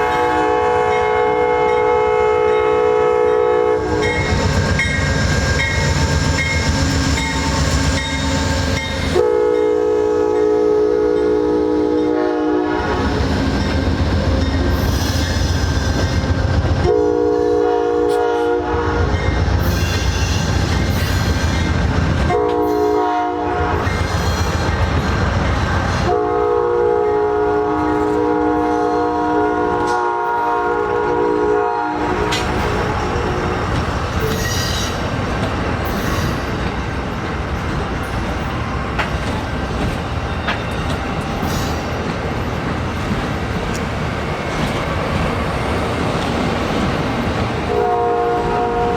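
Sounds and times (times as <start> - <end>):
train air horn blasts: 0.0 - 13.4, 16.8 - 19.2, 22.3 - 24.2, 26.0 - 35.0, 47.7 - 48.9
train rumbling on rails: 0.0 - 48.9.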